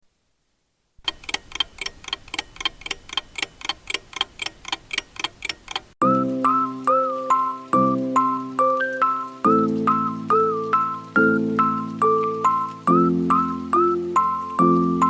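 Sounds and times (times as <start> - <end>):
clock ticking: 1.0 - 6.0.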